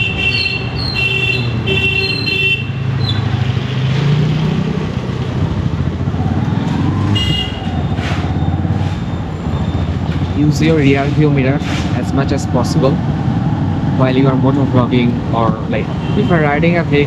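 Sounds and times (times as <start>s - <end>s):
horn tooting: 0.0s - 3.4s, 7.0s - 8.1s, 15.7s - 16.8s.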